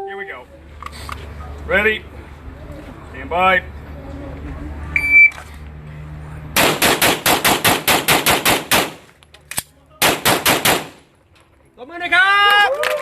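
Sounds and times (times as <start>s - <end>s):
pistol shots: 6.6s - 9.0s, 10.0s - 11.0s.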